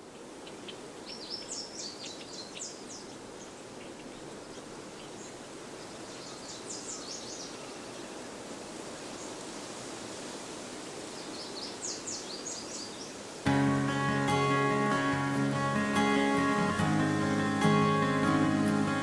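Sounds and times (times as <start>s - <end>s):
small birds chirping: 0.0s - 9.8s, 11.1s - 13.4s.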